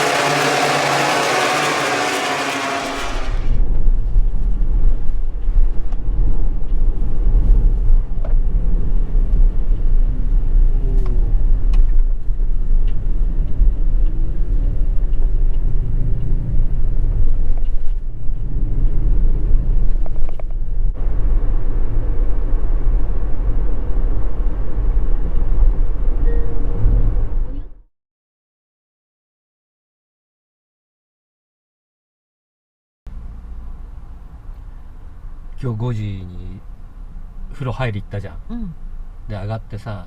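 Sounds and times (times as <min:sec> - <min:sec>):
vehicle engine rumble: 0:00.0 - 0:27.8.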